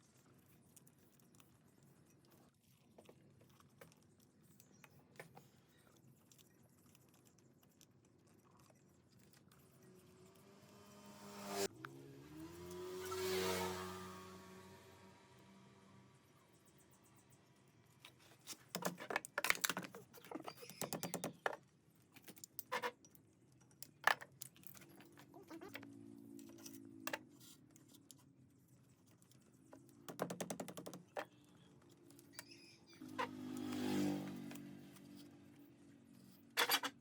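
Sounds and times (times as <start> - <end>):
metal parts clinking and rattling: 36.6 - 37.0.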